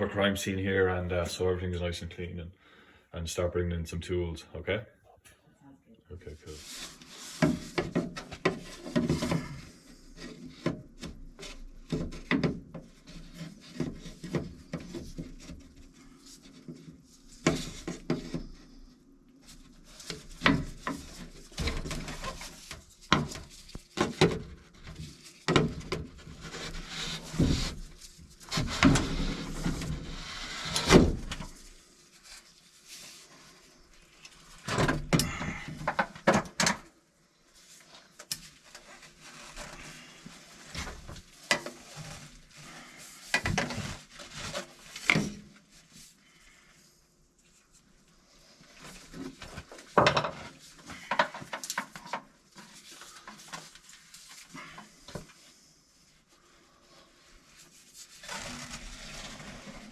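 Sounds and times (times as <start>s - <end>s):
drop sheet rustling and scraping: 56.4s - 59.9s.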